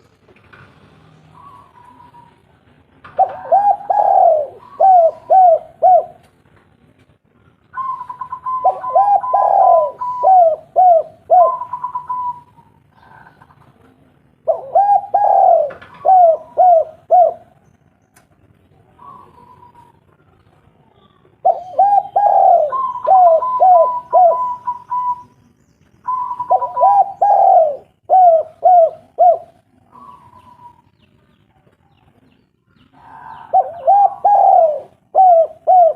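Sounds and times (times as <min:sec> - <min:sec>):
dove cooing: 0:03.1 - 0:06.2, 0:07.7 - 0:13.8, 0:14.4 - 0:17.6, 0:18.9 - 0:20.1, 0:21.4 - 0:25.3, 0:26.0 - 0:31.1, 0:32.9 - 0:35.9.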